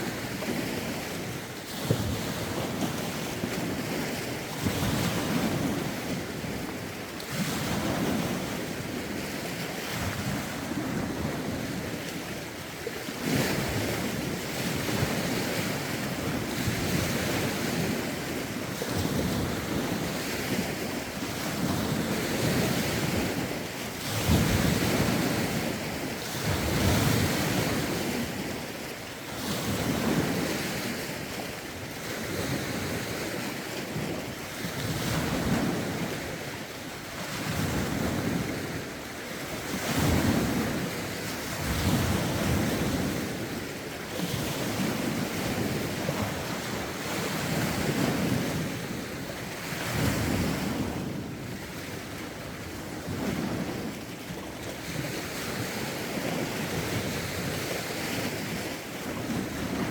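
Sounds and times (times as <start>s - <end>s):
lake waves washing: 0.0s - 59.9s.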